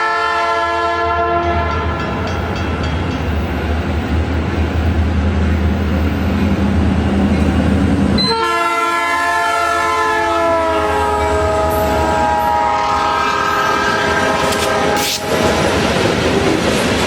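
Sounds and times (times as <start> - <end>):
train air horn blast: 0.0 - 1.7, 8.2 - 15.6.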